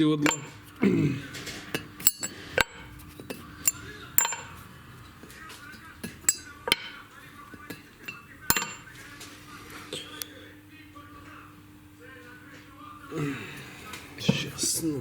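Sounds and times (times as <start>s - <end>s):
metal tools clinking: 0.2s - 0.7s, 1.3s - 5.2s, 6.0s - 7.0s, 8.0s - 9.0s.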